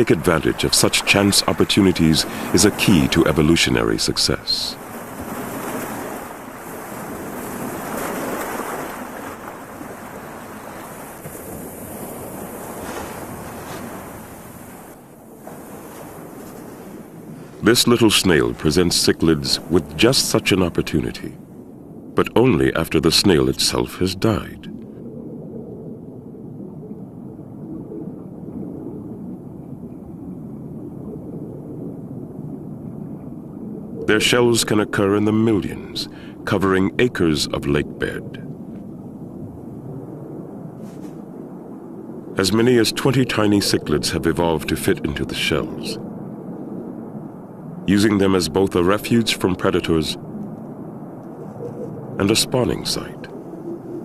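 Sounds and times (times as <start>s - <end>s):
rushing water: 0.0s - 25.0s, 26.5s - 54.0s
muffled underwater rumble: 37.6s - 54.0s.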